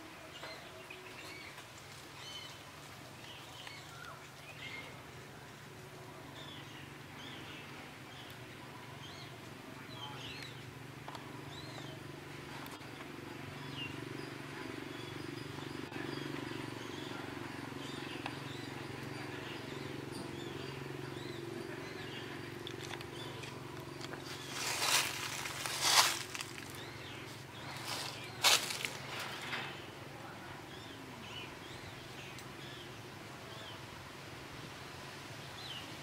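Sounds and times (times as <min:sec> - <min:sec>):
small birds chirping: 0:00.1 - 0:34.0
loud rustling: 0:24.2 - 0:29.8.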